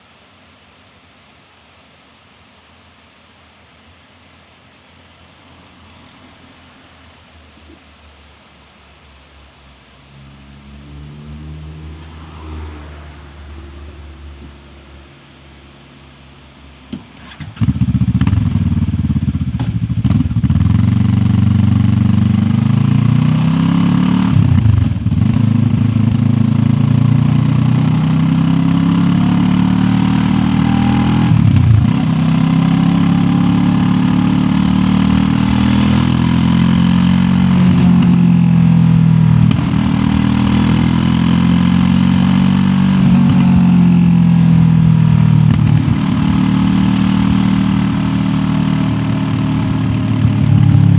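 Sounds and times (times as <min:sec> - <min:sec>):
motorcycle engine shifting gears: 0:16.9 - 0:50.9.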